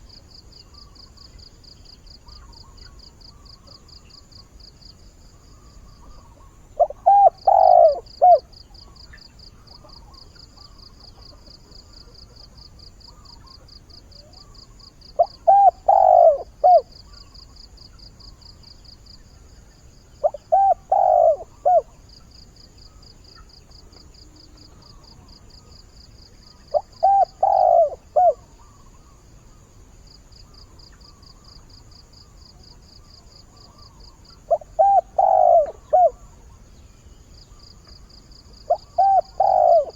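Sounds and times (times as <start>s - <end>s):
dove cooing: 6.0s - 8.5s, 15.2s - 17.3s, 20.2s - 22.0s, 26.6s - 29.1s, 33.6s - 36.4s, 38.6s - 39.9s.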